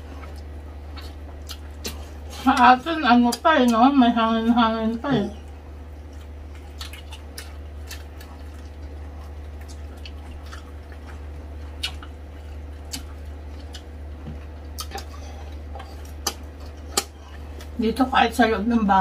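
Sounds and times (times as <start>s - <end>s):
wet chewing: 0.0s - 3.9s, 5.3s - 17.8s
steady low hum: 0.0s - 19.0s
lip and finger smacks: 15.8s - 17.7s.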